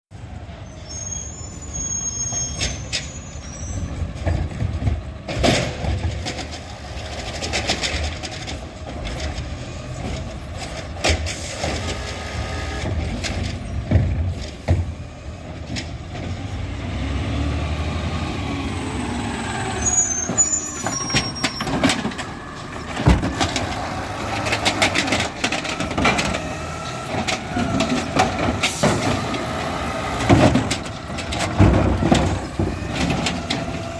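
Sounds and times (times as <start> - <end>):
garbage truck diesel engine: 0.1 - 33.9
loud clanks and bangs: 3.8 - 12.0, 19.7 - 33.9.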